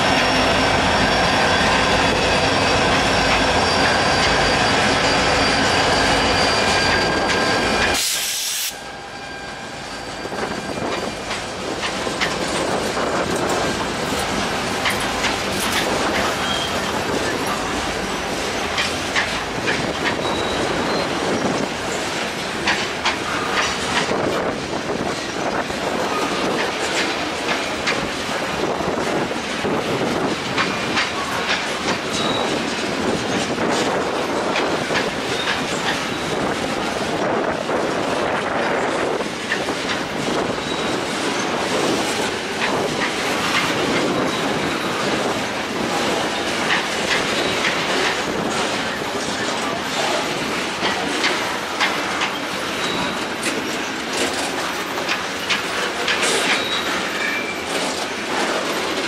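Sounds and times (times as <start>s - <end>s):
diesel locomotive engines: 0.0s - 59.0s
brief hiss: 8.0s - 8.8s
wheels clanking over rail joints: 10.4s - 59.0s.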